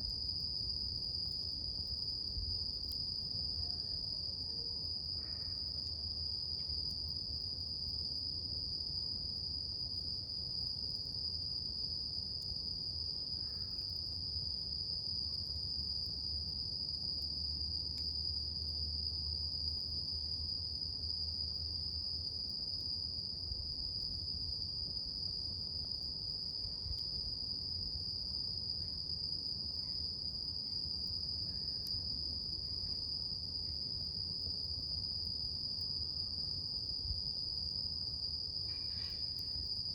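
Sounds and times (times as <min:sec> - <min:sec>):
high-pitched insect trill: 0:35.7 - 0:39.9.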